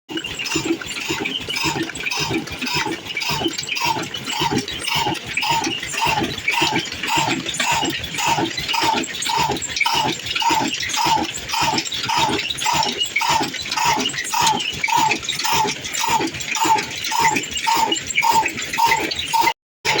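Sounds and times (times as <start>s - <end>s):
diesel engine running slowly: 0.1s - 19.5s
squeaking tone: 0.1s - 20.0s.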